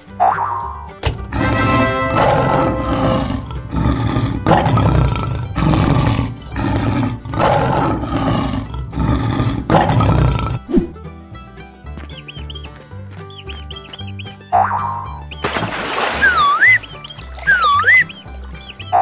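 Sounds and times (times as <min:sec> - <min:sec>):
lion roaring: 0:01.3 - 0:10.7.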